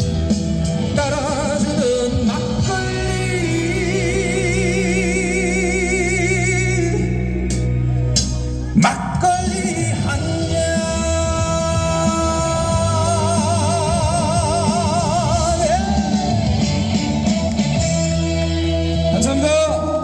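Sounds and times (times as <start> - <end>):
backing band playing: 0.0 - 20.0
man singing with vibrato: 0.2 - 17.3.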